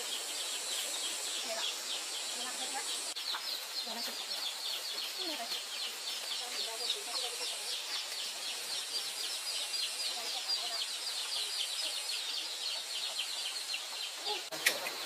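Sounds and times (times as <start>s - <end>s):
sharp click: 14.6s - 15.0s.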